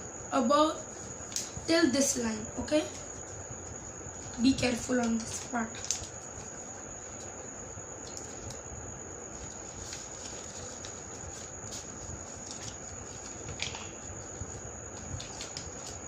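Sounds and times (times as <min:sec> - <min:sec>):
background hiss: 0:00.0 - 0:16.0
paper being folded and creased: 0:05.2 - 0:07.3, 0:09.4 - 0:16.0.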